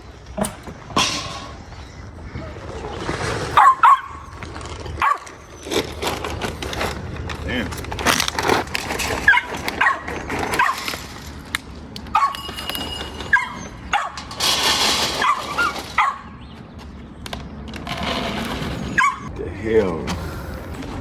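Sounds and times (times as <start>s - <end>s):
dogs barking and yipping: 2.3s - 6.9s, 8.8s - 16.7s, 18.8s - 19.3s.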